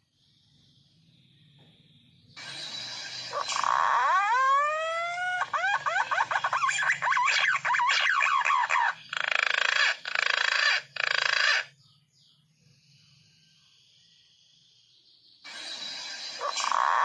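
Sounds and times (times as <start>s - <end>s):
harsh buzzy bird notes: 2.4s - 11.7s, 15.5s - 17.0s
pigeon whistling calls: 2.4s - 11.7s, 15.5s - 17.0s.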